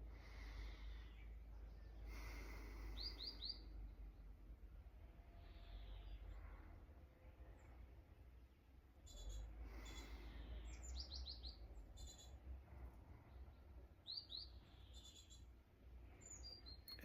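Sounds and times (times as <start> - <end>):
small birds chirping: 0.0 - 4.4, 5.4 - 6.6, 7.2 - 17.0.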